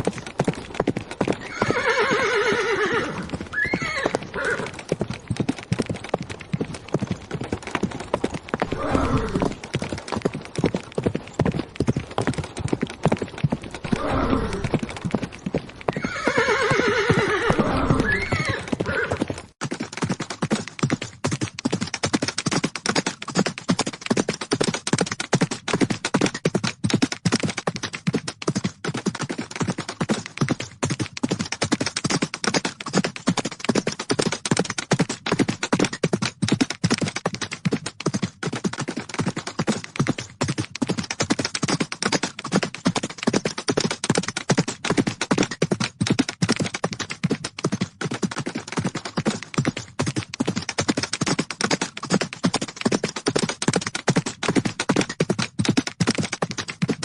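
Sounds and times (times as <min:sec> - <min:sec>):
horses galloping hoofbeats: 0:00.0 - 0:57.0
horse whinny: 0:01.4 - 0:04.8, 0:08.6 - 0:09.6, 0:13.9 - 0:14.8, 0:15.9 - 0:19.3.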